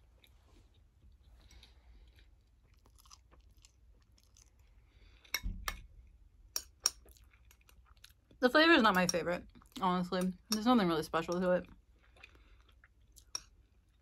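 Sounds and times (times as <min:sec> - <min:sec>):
person chewing noodles: 0:00.0 - 0:08.4, 0:11.8 - 0:14.0.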